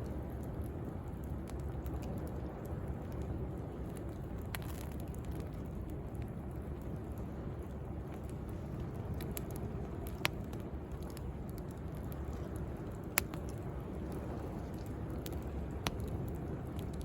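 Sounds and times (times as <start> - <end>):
bonfire crackling and popping: 0.0 - 17.0
sea waves: 7.9 - 17.0.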